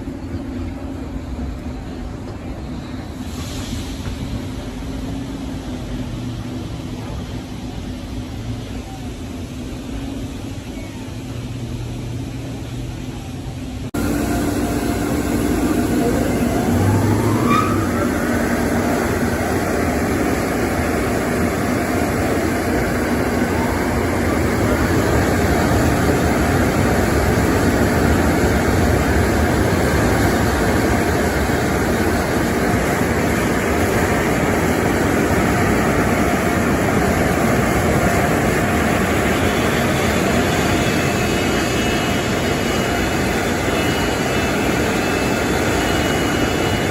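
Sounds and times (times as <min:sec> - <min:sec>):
faint rising whine: 0:14.0 - 0:29.4
car wash machinery rushing: 0:14.0 - 0:46.9.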